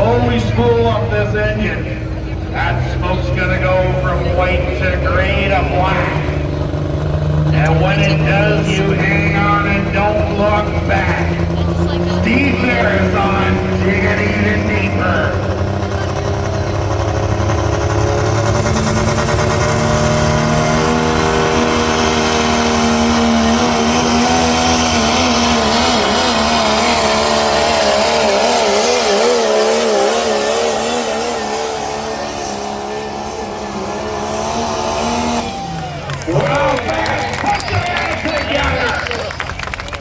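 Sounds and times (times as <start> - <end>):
diesel engine at high revs: 0.0 - 40.0.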